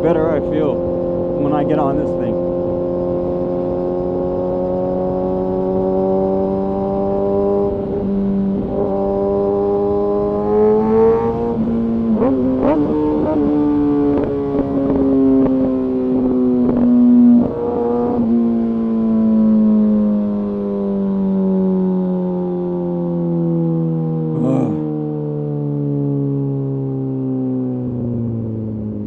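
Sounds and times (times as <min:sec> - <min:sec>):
motorcycle engine cruising: 0:00.0 - 0:21.4.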